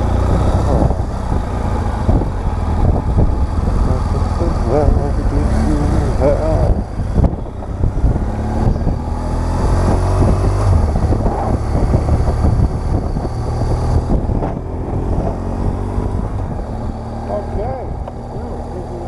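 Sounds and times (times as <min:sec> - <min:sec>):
wind noise on microphone: 0:00.0 - 0:18.5
motorcycle engine running: 0:00.0 - 0:19.0.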